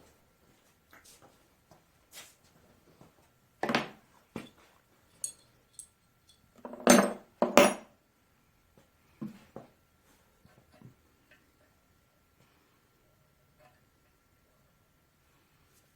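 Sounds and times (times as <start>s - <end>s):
hammer striking metal chisel: 7.4s - 7.9s.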